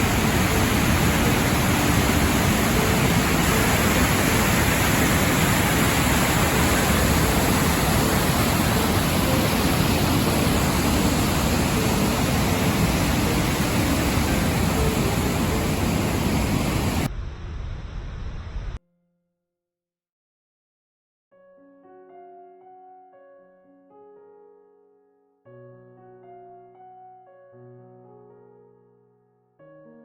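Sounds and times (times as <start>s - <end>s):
waterfall roaring: 0.0s - 17.1s.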